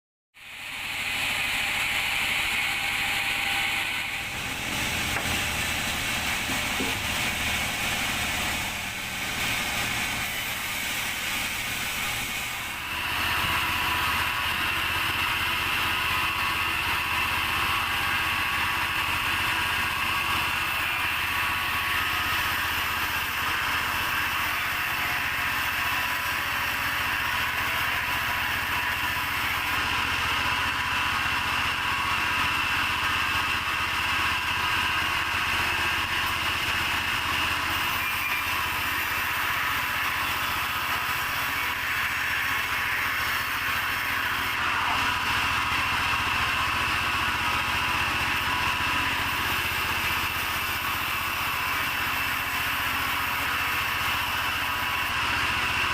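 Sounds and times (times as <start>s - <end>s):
steady high whine: 0.4s - 16.9s, 25.4s - 52.5s
sawmill machinery droning: 0.4s - 55.9s.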